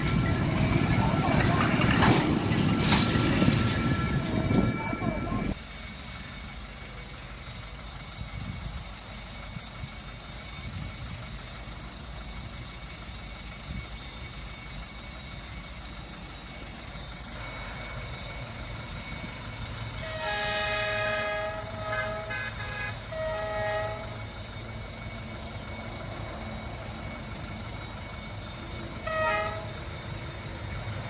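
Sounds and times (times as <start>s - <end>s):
train passing with low rumble: 0.0s - 31.0s
locomotive horn blasts: 20.0s - 24.2s, 29.0s - 29.8s.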